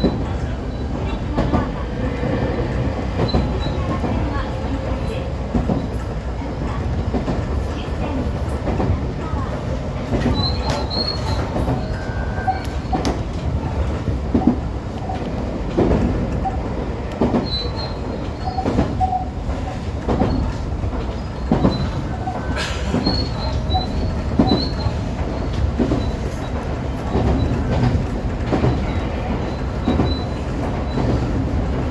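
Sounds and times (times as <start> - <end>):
rail joint clacks: 0.0 - 31.9
train wheel and rail rumble: 0.0 - 31.9
faint wheel squeal: 10.3 - 13.2, 17.4 - 19.3, 21.2 - 26.6, 28.8 - 31.3.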